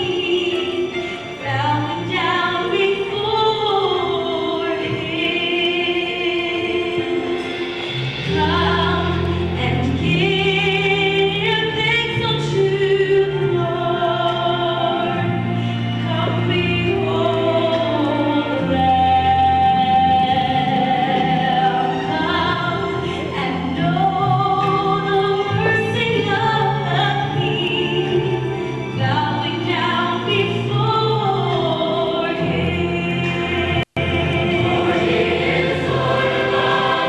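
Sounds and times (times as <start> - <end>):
choir singing: 31.6 - 37.0.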